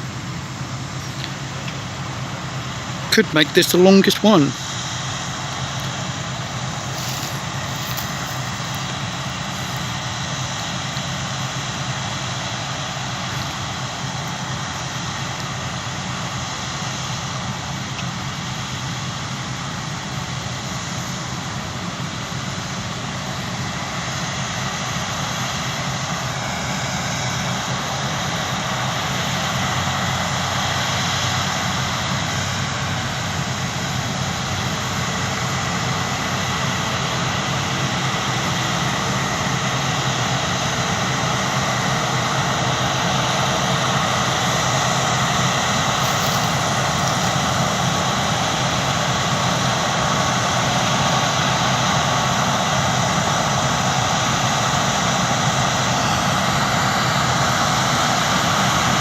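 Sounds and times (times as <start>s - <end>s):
combine harvester droning: 0.0s - 59.0s.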